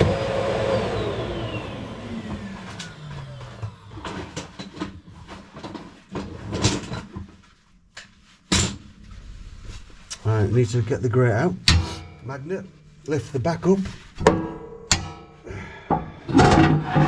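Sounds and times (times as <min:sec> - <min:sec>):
vacuum cleaner motor winding down: 0:00.0 - 0:06.6
knocks and clicks of stove parts: 0:14.2 - 0:15.3.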